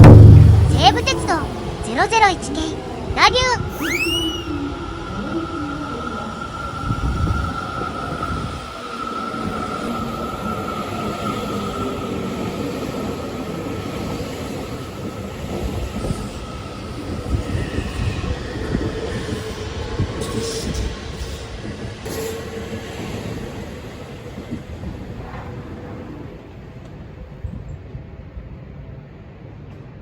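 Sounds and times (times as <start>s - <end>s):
sharp knocks: 0.0s - 1.5s
electric train rumbling on rails: 0.0s - 30.0s.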